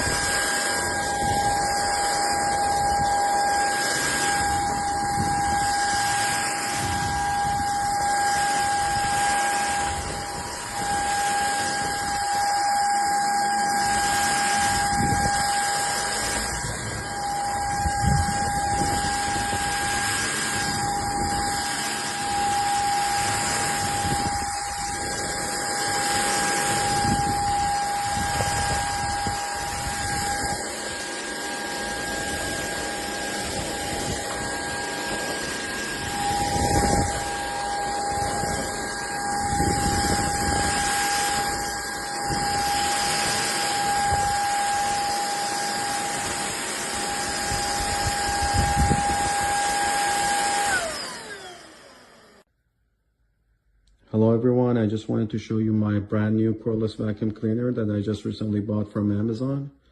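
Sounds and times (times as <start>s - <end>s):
vacuum cleaner running: 0.0s - 52.5s.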